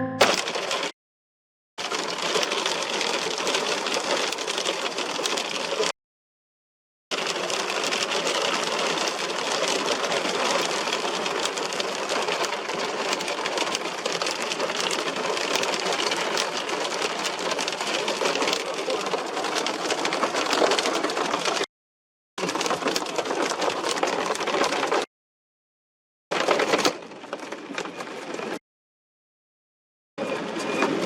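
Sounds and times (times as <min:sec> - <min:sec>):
hailstones pelting down: 0:07.2 - 0:21.6.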